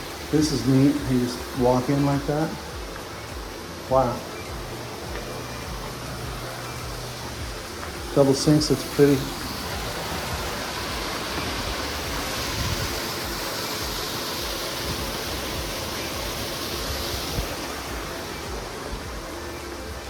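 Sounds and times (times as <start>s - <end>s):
fountain water splashing: 0.0s - 20.0s.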